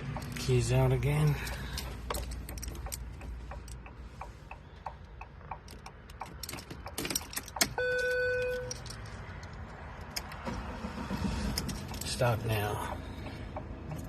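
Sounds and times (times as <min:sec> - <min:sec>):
car keys jangling: 0:00.0 - 0:03.9, 0:05.1 - 0:10.5, 0:11.3 - 0:12.9, 0:13.8 - 0:14.0
dashboard chime beep: 0:07.8 - 0:08.7.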